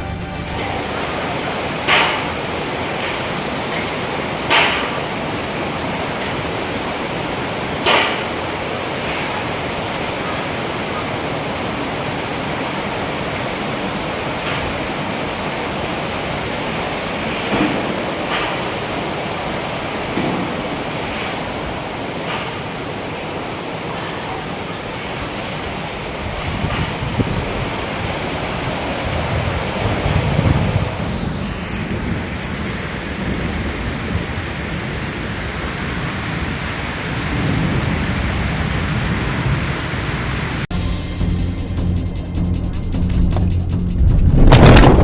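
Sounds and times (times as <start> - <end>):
strong wind rushing over microphone: 0.6 - 40.7, 43.4 - 45.0
wind buffeting hits: 24.7 - 41.2, 42.0 - 45.0.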